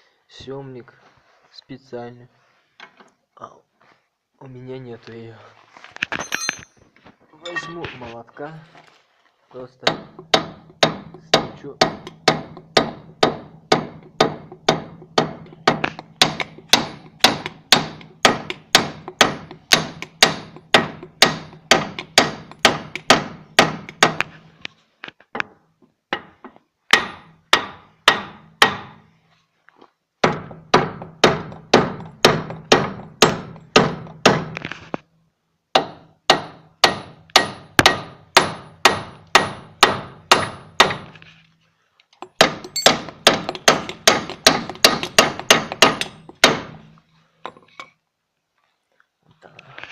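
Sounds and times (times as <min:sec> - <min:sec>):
hammer striking metal: 0:09.9 - 0:24.2, 0:35.8 - 0:41.0, 0:42.2 - 0:46.8.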